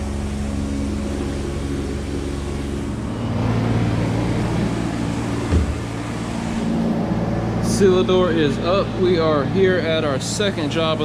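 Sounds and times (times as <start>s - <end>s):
engine droning: 0.0s - 11.0s
brief low thump: 5.5s - 6.0s.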